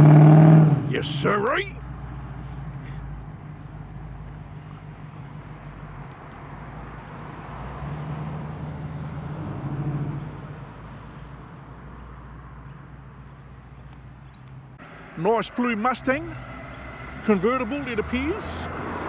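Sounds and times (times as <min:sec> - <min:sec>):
car engine running at low revs: 0:14.8 - 0:19.0.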